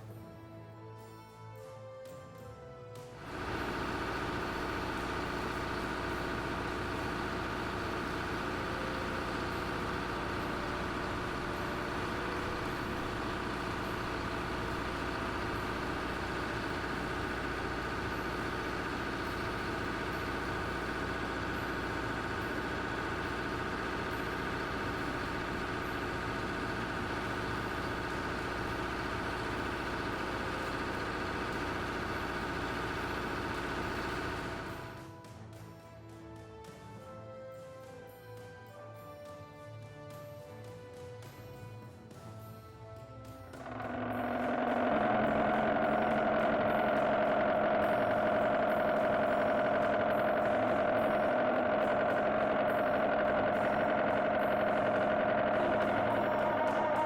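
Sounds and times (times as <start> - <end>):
heavy vehicle engine running: 3.2 - 35.0, 43.6 - 57.0.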